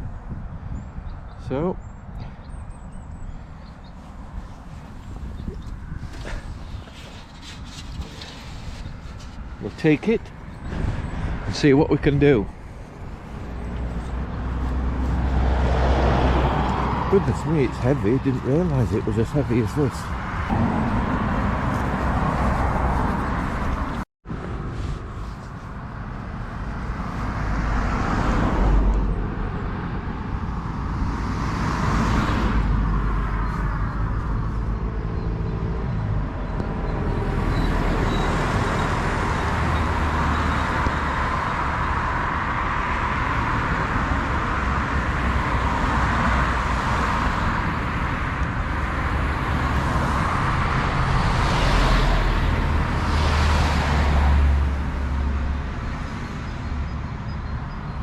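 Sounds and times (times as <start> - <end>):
road traffic roar: 0.0 - 58.0
vehicles passing: 0.0 - 58.0.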